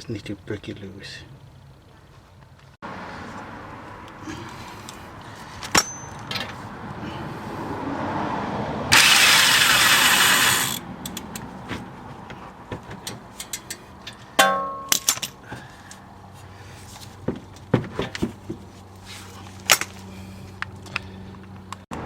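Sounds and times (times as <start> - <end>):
metallic clang: 5.6 - 6.6, 12.9 - 15.4
impact wrench running: 8.9 - 10.9
tools clicking on metal: 9.0 - 11.5, 13.0 - 14.2.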